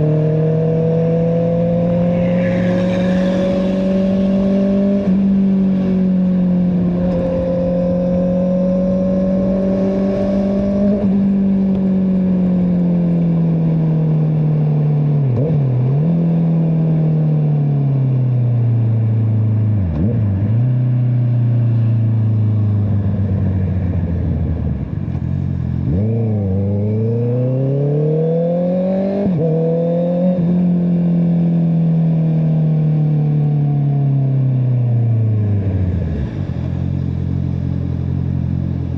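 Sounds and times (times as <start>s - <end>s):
motorcycle engine revving: 0.0s - 14.1s, 19.8s - 33.3s.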